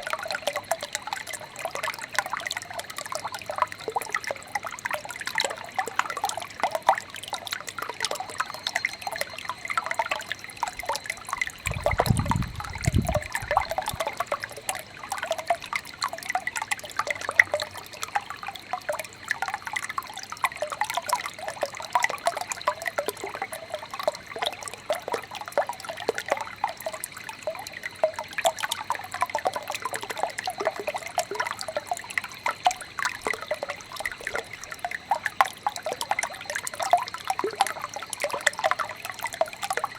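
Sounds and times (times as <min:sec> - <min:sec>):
faint steady high tone: 0:00.0 - 0:39.9
stream babbling and trickling: 0:00.0 - 0:39.9.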